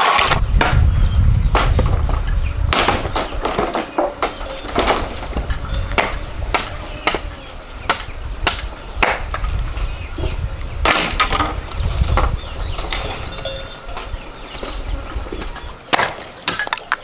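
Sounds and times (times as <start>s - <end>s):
low rumble: 0.4s - 14.4s.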